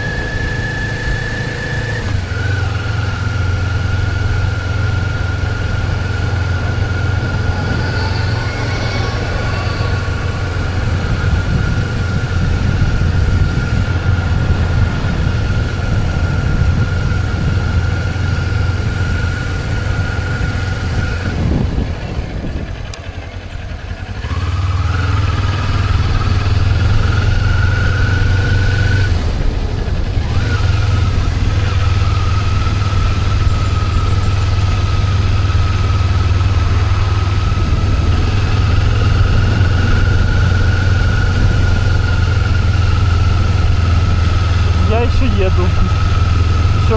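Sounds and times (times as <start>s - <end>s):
motorcycle engine running: 0.0s - 46.9s
thin high whine: 3.0s - 23.0s, 32.9s - 46.9s.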